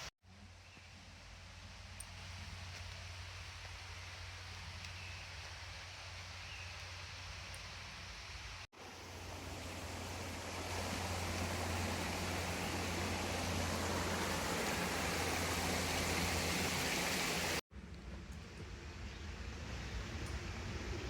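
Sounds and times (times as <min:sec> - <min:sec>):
stream running: 0:01.0 - 0:17.6.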